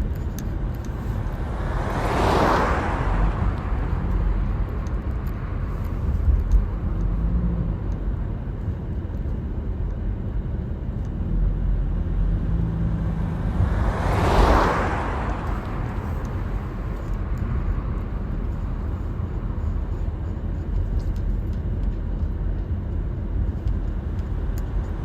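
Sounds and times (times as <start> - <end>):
car road rumble: 0.0 - 25.0
passing vehicle whoosh: 0.6 - 7.8, 12.0 - 20.2.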